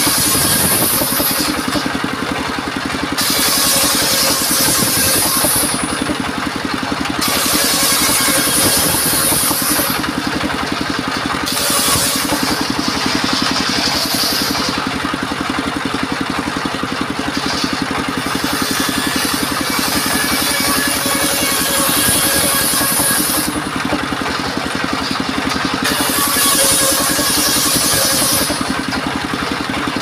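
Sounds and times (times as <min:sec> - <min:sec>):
sawmill engine running: 0:00.0 - 0:30.0
saw blade hissing: 0:03.2 - 0:06.0, 0:11.4 - 0:14.8, 0:24.2 - 0:28.7.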